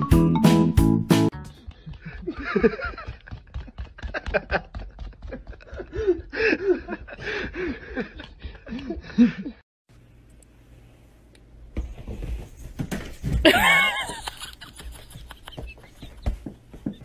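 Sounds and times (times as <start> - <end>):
person snickering and chuckling: 1.6 - 9.6, 13.4 - 17.0.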